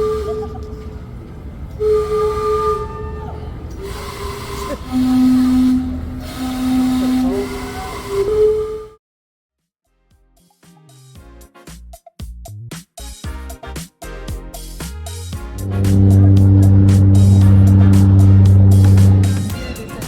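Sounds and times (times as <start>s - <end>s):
steam whistles playing chime tune: 0.0s - 1.1s, 1.8s - 8.9s, 15.6s - 20.0s
steam hissing: 3.7s - 8.6s, 15.6s - 20.0s.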